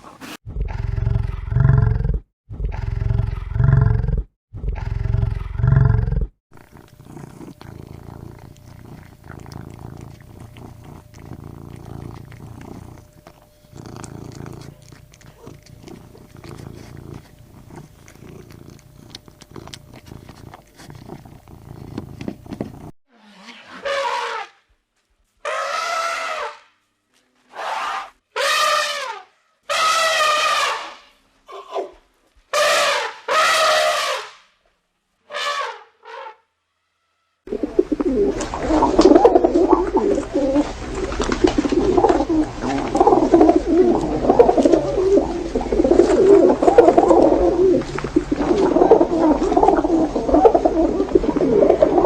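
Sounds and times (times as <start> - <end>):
pigeons cooing: 0.0 - 0.4, 37.5 - 52.0
animal harsh trumpet-like calls: 23.1 - 24.6, 25.4 - 26.7, 27.5 - 34.5, 35.3 - 37.4.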